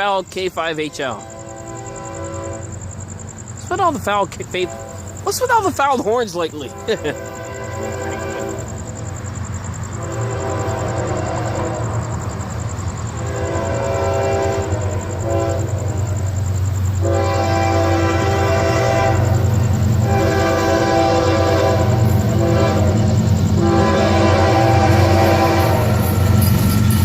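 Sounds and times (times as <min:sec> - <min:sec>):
diesel locomotive rumble: 0:00.0 - 0:27.0
locomotive air horn blasts: 0:01.1 - 0:02.9, 0:04.7 - 0:05.2, 0:06.7 - 0:08.7, 0:10.0 - 0:11.9, 0:13.2 - 0:16.2, 0:17.0 - 0:26.6.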